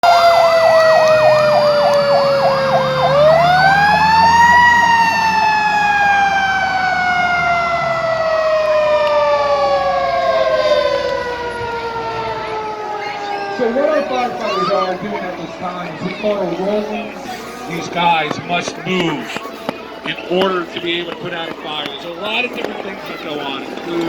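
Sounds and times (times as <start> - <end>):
siren wail: 0.0 - 17.2
siren yelp: 0.0 - 17.2.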